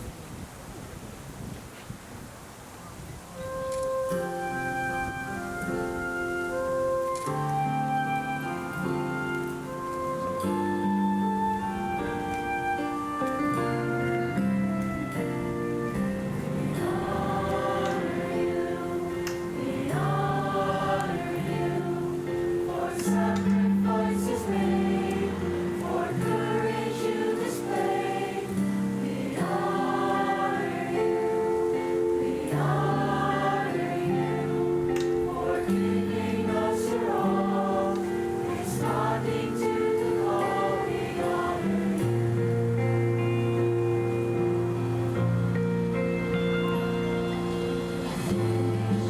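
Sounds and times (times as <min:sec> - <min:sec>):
choir singing: 0:13.5 - 0:43.2, 0:47.3 - 0:49.0.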